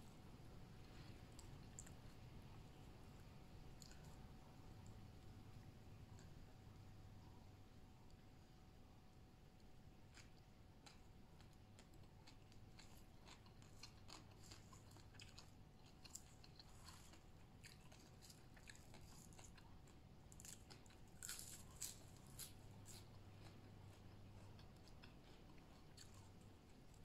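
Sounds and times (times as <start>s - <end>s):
crunchy chewing of vegetables: 0.8s - 2.3s, 3.8s - 4.8s, 9.6s - 27.0s.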